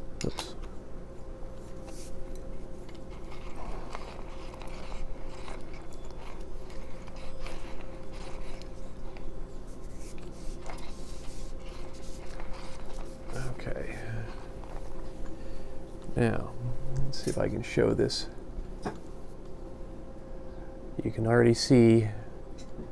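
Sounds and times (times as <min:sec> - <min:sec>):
manual coffee grinder crunching: 0:01.6 - 0:16.1.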